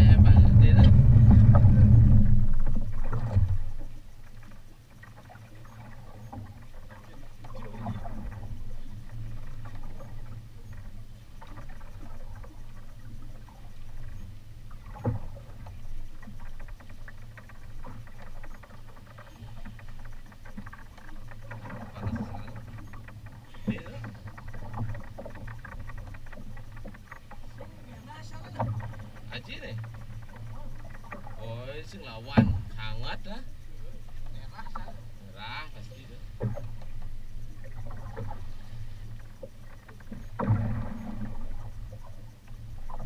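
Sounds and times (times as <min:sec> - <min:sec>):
steady low hum: 0:00.0 - 0:43.0
water slapping against boat hull: 0:00.0 - 0:43.0
sharp knock on hull: 0:32.4 - 0:32.8.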